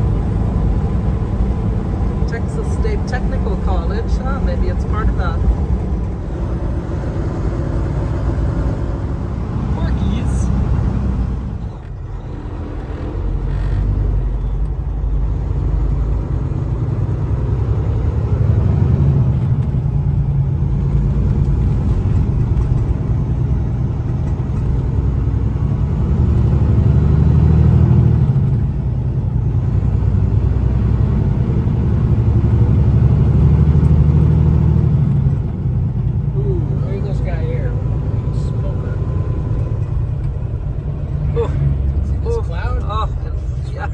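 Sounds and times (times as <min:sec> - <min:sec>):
diesel engine drone: 0:00.0 - 0:43.9
road noise: 0:00.0 - 0:43.9.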